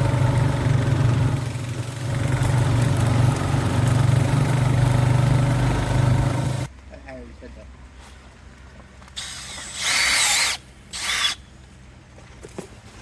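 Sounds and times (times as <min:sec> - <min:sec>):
tractor engine running steadily: 0:00.0 - 0:07.0.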